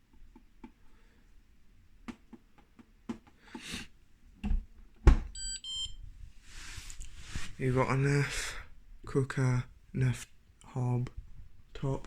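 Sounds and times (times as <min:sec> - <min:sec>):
short electronic beeps: 0:05.4 - 0:06.0.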